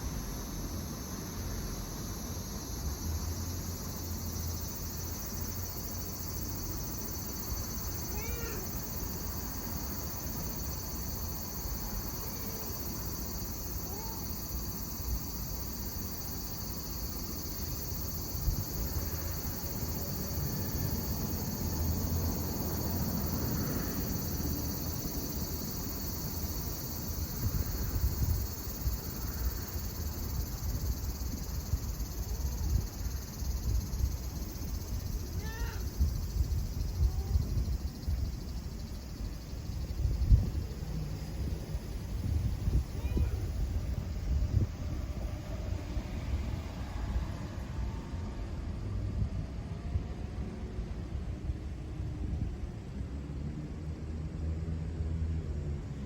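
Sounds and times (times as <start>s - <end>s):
insects trilling: 0.0s - 47.9s
cat meowing: 8.1s - 8.8s, 13.8s - 14.3s.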